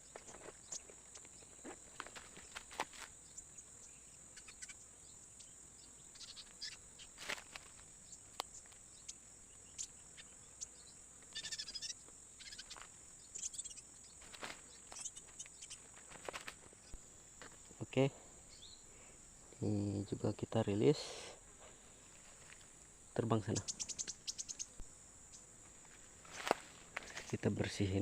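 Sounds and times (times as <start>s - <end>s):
forest insects droning: 0.0s - 28.0s
bird chirps: 3.2s - 7.1s, 8.0s - 15.9s, 18.5s - 18.9s, 23.4s - 25.5s.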